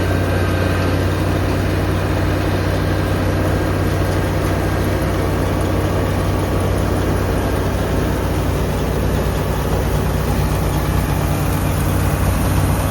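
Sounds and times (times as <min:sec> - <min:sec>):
harvesting machine engine humming: 0:00.0 - 0:12.9.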